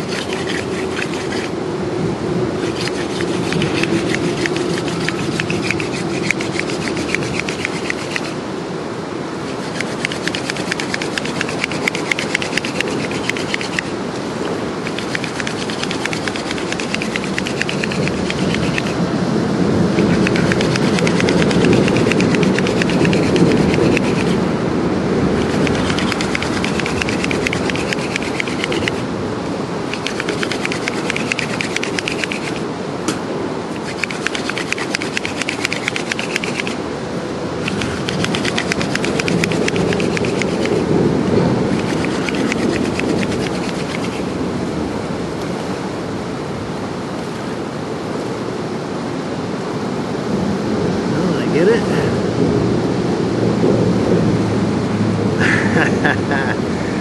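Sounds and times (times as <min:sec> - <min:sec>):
hand drill spindle rubbing in hearth: 0:00.0 - 0:01.6, 0:02.6 - 0:08.4, 0:09.5 - 0:14.0, 0:14.8 - 0:19.0, 0:20.0 - 0:24.4, 0:25.4 - 0:29.0, 0:29.9 - 0:32.6, 0:33.7 - 0:36.8, 0:37.6 - 0:40.9, 0:41.7 - 0:44.3
steady rain: 0:35.7 - 0:43.4, 0:44.2 - 0:57.0.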